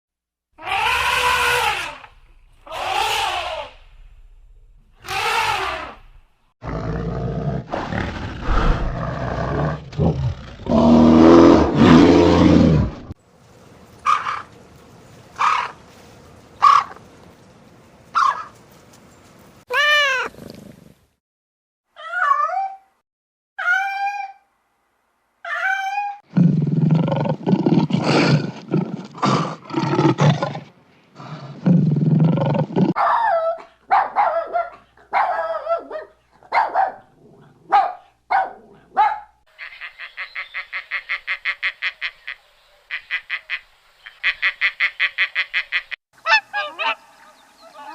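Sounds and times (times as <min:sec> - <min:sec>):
loud pitched animal calls: 0:00.6 - 0:03.8, 0:05.0 - 0:06.0
rising and falling animal cry: 0:00.6 - 0:03.8, 0:05.0 - 0:06.1, 0:23.6 - 0:24.4, 0:25.4 - 0:30.4
low animal growling: 0:06.6 - 0:13.2, 0:26.3 - 0:33.0
low animal rumbling: 0:07.0 - 0:13.2, 0:31.2 - 0:33.0.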